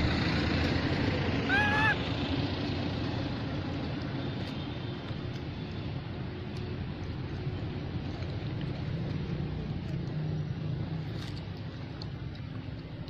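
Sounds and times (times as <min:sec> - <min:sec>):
low background rumble: 0:00.0 - 0:13.0
baby monkey crying call: 0:01.5 - 0:02.0.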